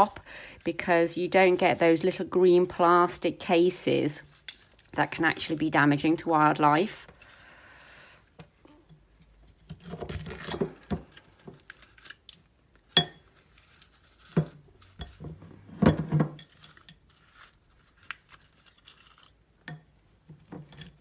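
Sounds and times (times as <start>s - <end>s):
dishes clinking and knocking: 13.0s - 13.2s, 14.4s - 16.6s, 19.7s - 21.0s.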